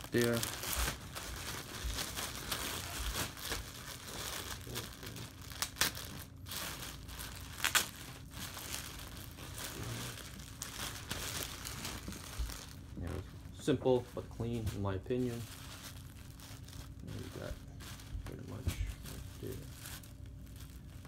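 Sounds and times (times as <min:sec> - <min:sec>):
packaging crinkling: 0:00.0 - 0:21.0.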